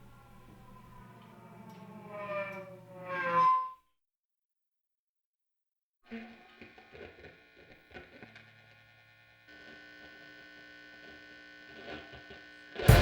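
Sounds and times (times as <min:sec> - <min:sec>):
electrical hum: 0:00.0 - 0:03.0, 0:08.2 - 0:13.0.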